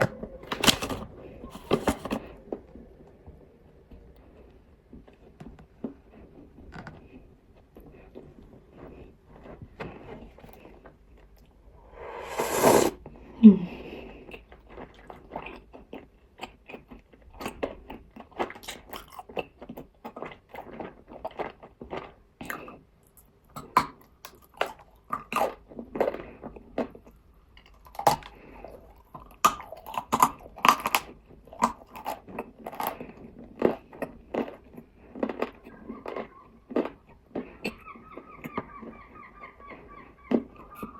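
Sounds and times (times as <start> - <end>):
crunchy chewing of clay: 14.2 - 39.0.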